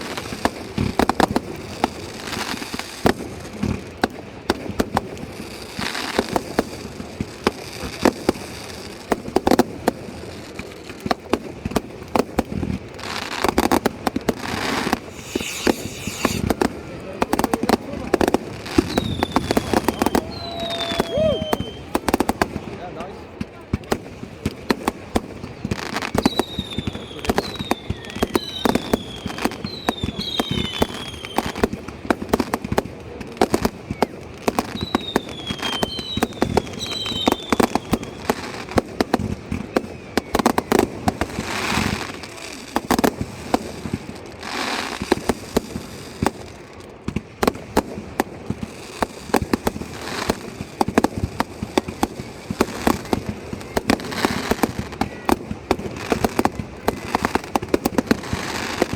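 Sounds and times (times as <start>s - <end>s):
fireworks bangs and crackles: 0.0s - 58.9s
fireworks whistles: 14.4s - 17.0s, 18.6s - 22.0s, 26.1s - 31.7s, 33.8s - 42.3s
hissing whooshes: 14.8s - 16.7s.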